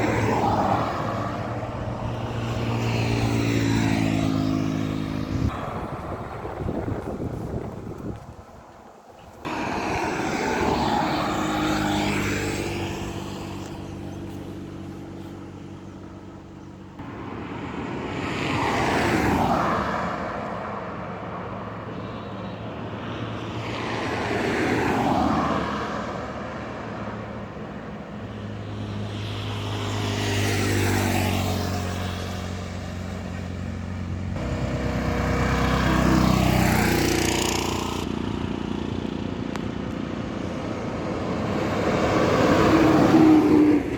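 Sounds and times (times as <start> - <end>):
trucks and buses passing: 0.0 - 43.9.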